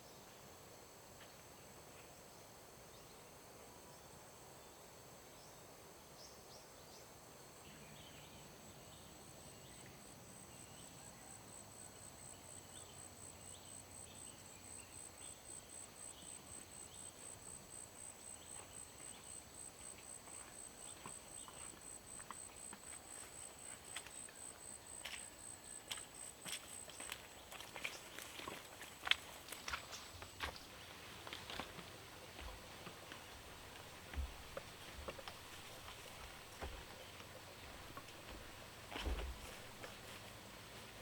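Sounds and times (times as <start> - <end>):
insects trilling: 11.2 - 41.0.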